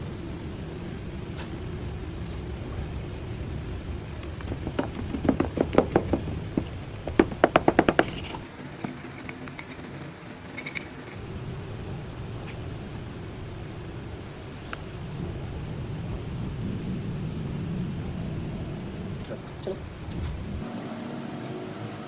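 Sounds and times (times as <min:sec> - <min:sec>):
low rumble: 0:00.0 - 0:07.2, 0:11.2 - 0:20.7
sharp knocks of hard objects: 0:04.5 - 0:08.4.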